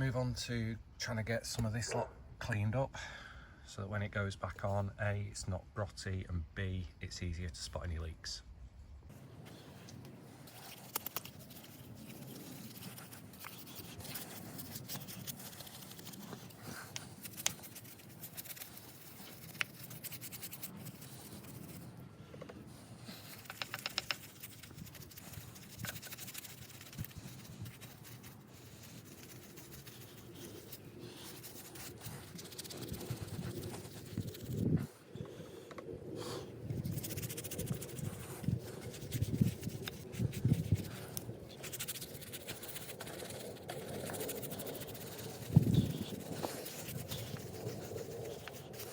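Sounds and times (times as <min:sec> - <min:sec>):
brush scrubbing metal: 0:10.4 - 0:21.9, 0:23.0 - 0:34.7, 0:36.8 - 0:48.9.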